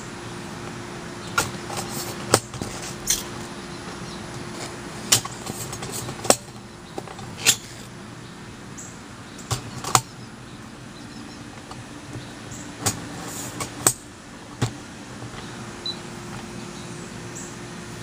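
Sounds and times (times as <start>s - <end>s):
faint steady hum: 0.0s - 18.0s
parts clicking and knocking: 1.3s - 7.9s, 9.4s - 10.2s.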